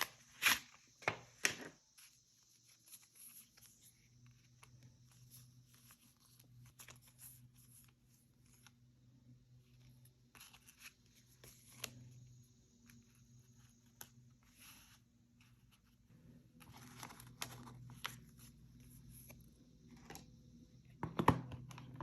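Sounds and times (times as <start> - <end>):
faint low hum: 0.9 - 22.0
paper rustling: 16.6 - 19.4.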